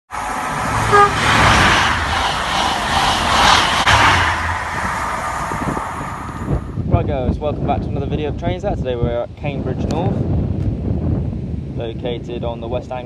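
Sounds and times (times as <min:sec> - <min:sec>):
low hum: 0:00.1 - 0:07.1
train rushing noise: 0:00.1 - 0:07.3.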